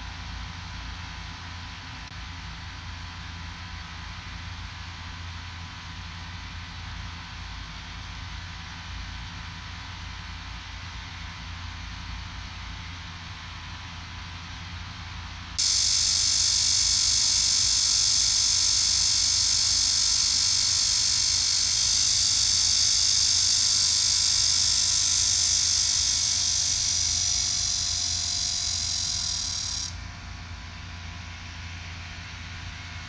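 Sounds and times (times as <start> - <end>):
cicada buzzing: 15.6 - 30.3.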